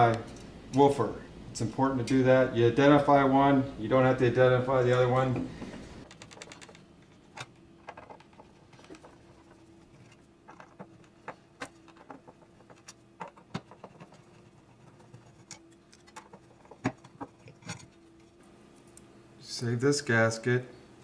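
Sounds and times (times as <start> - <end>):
faint steady hum: 0.0 - 21.0
tools clicking and tapping: 4.9 - 18.0.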